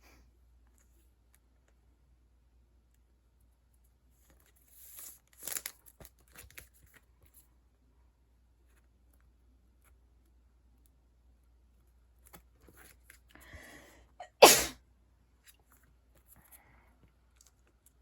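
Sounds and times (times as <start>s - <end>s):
person sneezing: 14.2s - 14.8s.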